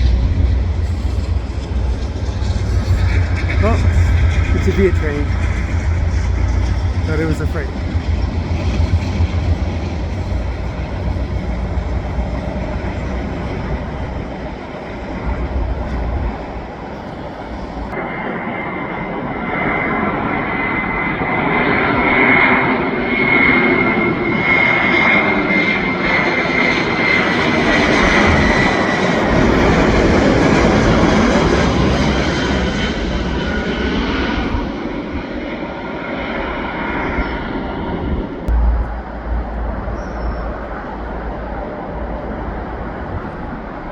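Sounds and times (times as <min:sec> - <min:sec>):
low rumble: 0:00.0 - 0:19.3, 0:27.1 - 0:35.5, 0:37.7 - 0:43.9
high steady jet whine: 0:00.0 - 0:43.9
jet airliner rushing overhead: 0:00.0 - 0:43.9.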